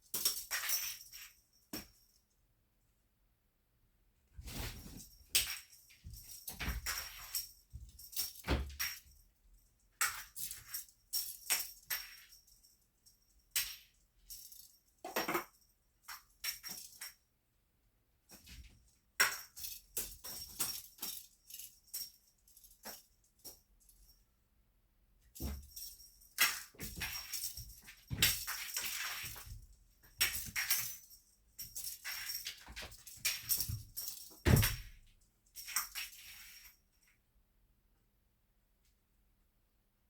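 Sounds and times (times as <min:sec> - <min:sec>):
cat wand toy jingling: 0:25.4 - 0:35.0.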